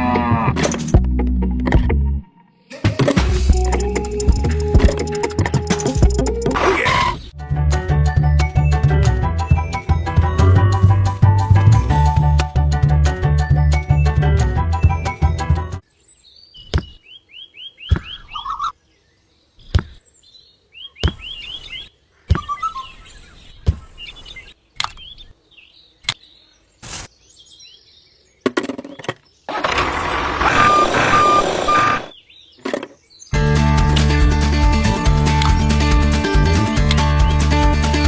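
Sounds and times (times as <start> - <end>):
birds chirping: 15.8 - 33.4
short beeps: 30.5 - 32.0.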